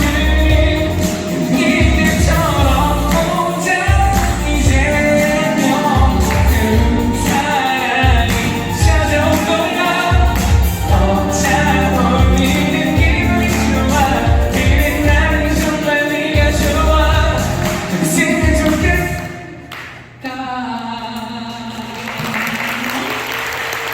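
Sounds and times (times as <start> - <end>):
backing track with bass beat: 0.0 - 19.4
man singing pop song: 0.0 - 22.3
applause: 21.9 - 23.9.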